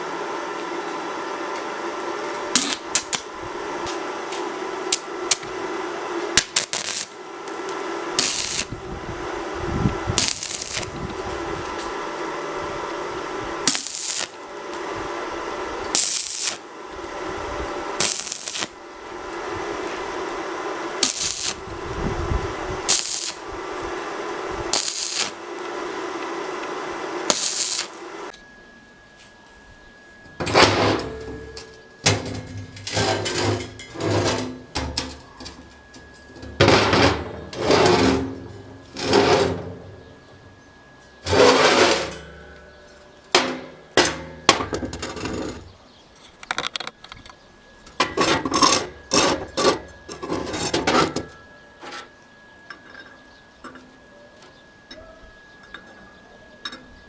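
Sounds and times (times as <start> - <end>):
steady running machine noise: 0.0 - 57.0
loud bursts: 8.1 - 11.1, 13.2 - 26.1, 26.8 - 28.3
metallic clanks and scrapes: 30.4 - 39.9, 41.2 - 46.8, 48.0 - 52.1.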